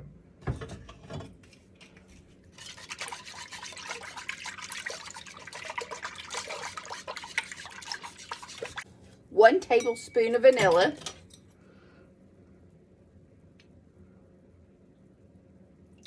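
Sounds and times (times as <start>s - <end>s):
whisk sloshing and clinking in pot: 1.8s - 8.9s.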